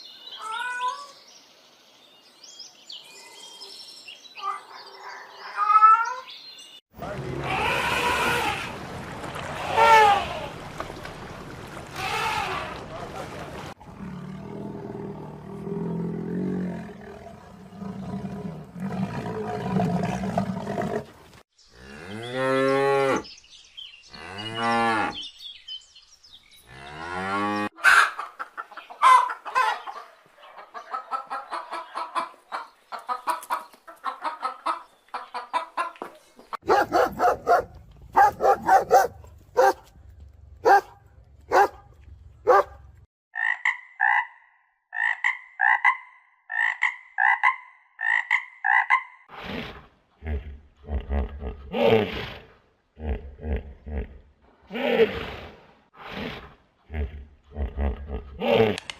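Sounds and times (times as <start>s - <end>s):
chickens clucking: 27.8s - 36.7s.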